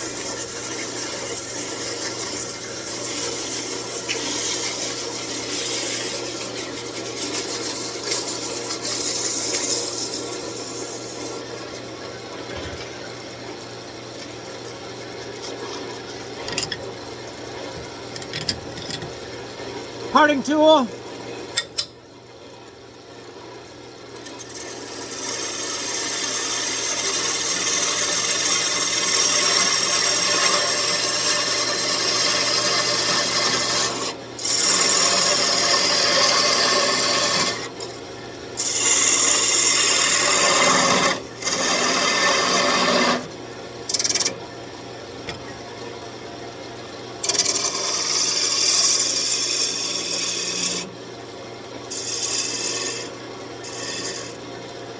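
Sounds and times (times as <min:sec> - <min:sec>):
tool scraping spinning wood: 0:00.0 - 0:11.7, 0:24.2 - 0:37.9, 0:38.6 - 0:43.3, 0:47.2 - 0:50.9, 0:51.9 - 0:54.4
lathe humming: 0:24.5 - 0:37.9, 0:47.2 - 0:50.9, 0:51.9 - 0:54.4.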